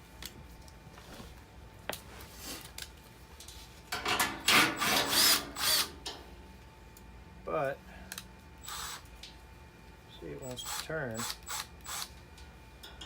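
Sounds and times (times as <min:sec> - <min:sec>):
cordless drill driving a screw: 0:04.5 - 0:05.9, 0:08.6 - 0:09.0, 0:10.6 - 0:12.1.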